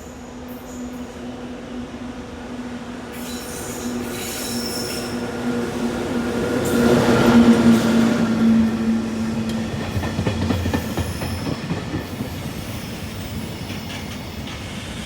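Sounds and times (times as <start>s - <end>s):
freight train hum: 0.0s - 15.0s
train wheel squeal: 3.1s - 5.4s, 6.6s - 15.0s.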